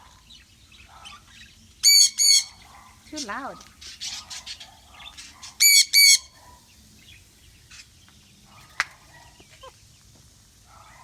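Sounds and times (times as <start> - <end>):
bird harsh calls: 0.8 - 6.7.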